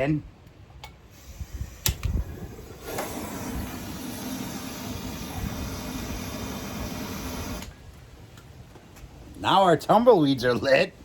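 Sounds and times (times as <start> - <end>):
torch flame hissing: 1.1 - 7.8.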